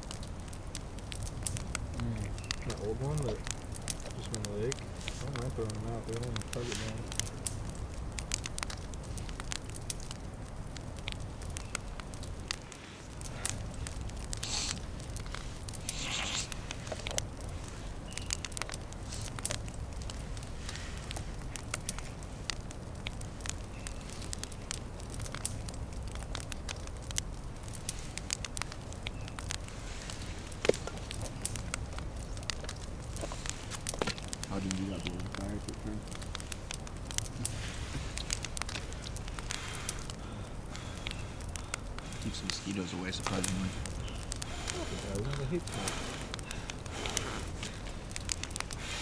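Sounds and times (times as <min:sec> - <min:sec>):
campfire crackling and popping: 0:00.0 - 0:49.0
rustling hisses: 0:01.2 - 0:07.4, 0:12.2 - 0:23.3, 0:27.6 - 0:49.0.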